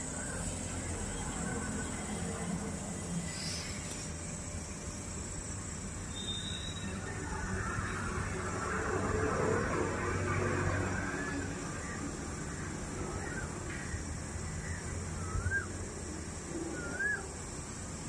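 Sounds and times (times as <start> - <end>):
outdoor background hiss: 0.0 - 18.0
bird whistling calls: 6.1 - 7.0, 16.8 - 17.3.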